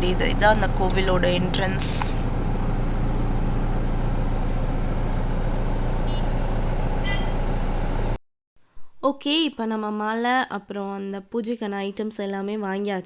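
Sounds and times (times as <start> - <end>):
car engine idling: 0.0 - 7.3
outdoor street noise: 0.0 - 8.2.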